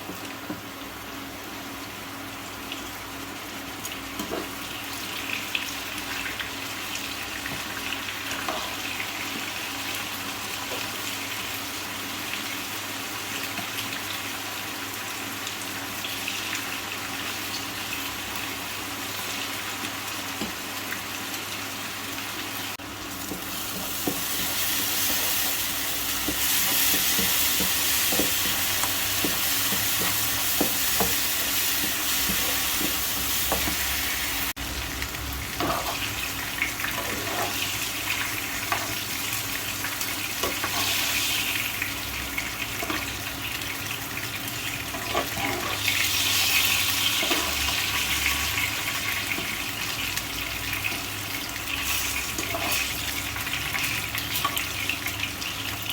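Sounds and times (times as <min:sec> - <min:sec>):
food sizzling in hot oil: 0:00.0 - 0:55.9
utensil stirring in pan: 0:23.1 - 0:34.6, 0:35.6 - 0:41.8.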